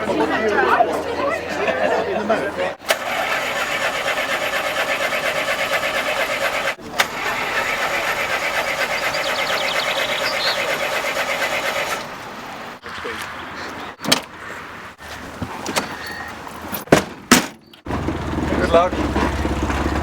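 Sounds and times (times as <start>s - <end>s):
car engine running: 2.9s - 12.8s, 17.9s - 20.0s.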